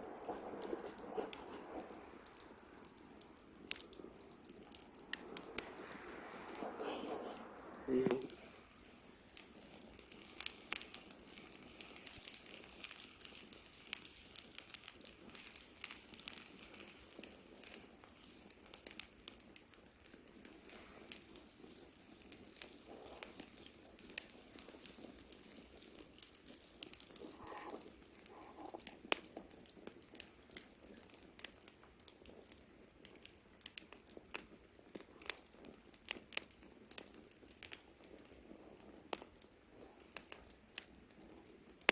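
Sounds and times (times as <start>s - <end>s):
soft background hiss: 0.0s - 31.0s
campfire crackling and popping: 0.0s - 41.9s.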